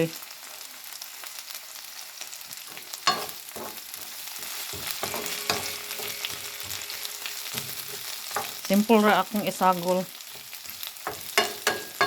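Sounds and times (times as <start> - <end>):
food sizzling in a frying pan: 0.0 - 12.0
utensil knocking against pan: 4.7 - 6.8, 11.0 - 12.0.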